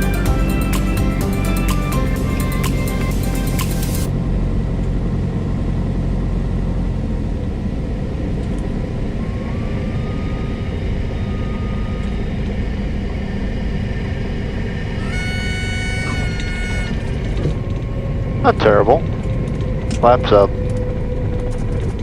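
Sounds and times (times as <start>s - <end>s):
aircraft engine rumble: 0.0s - 22.0s
cabin airflow noise: 14.4s - 22.0s.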